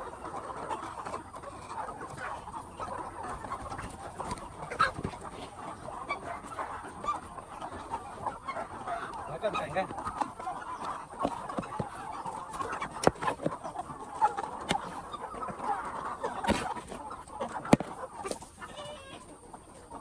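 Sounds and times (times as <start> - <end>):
capons clucking: 0.0 - 20.0.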